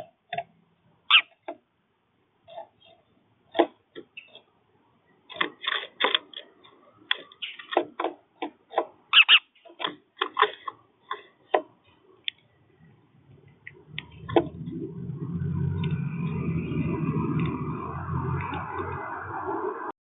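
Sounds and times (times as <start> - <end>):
birds pecking seed: 5.1 - 14.4.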